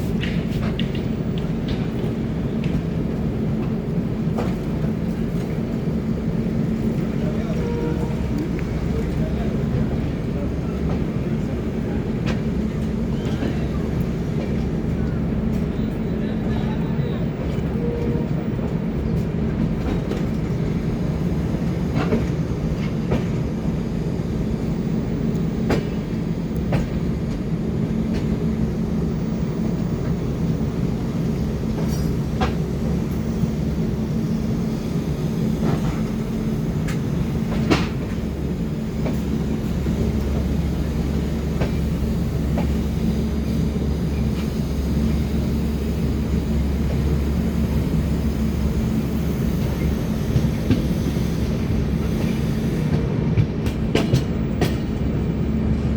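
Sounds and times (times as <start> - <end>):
train rumbling on track: 0.0 - 55.9.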